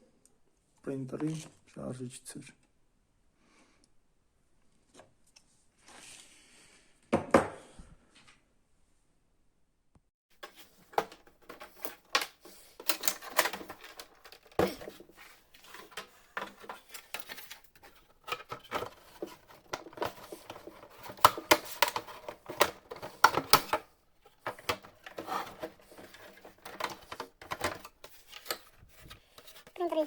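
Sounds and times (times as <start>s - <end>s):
plastic parts clicking and clattering: 10.4s - 30.0s.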